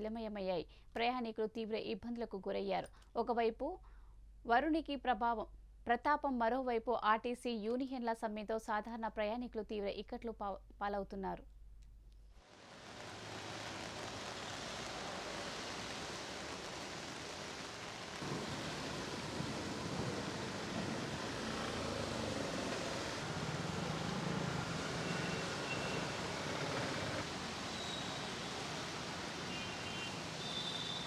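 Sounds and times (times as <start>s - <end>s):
heavy rain falling: 12.5s - 31.0s.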